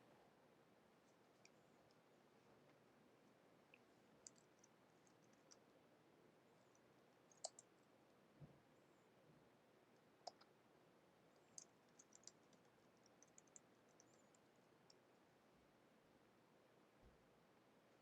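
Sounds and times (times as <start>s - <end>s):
computer mouse clicks: 3.7s - 5.6s, 7.3s - 7.7s, 10.2s - 10.5s, 11.4s - 15.0s.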